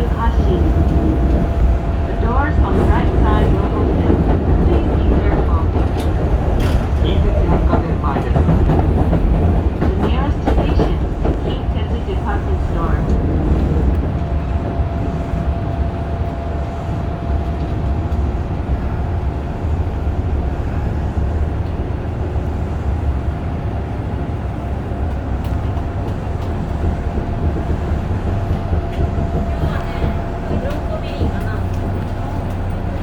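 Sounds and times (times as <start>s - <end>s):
train low rumble: 0.0s - 33.0s.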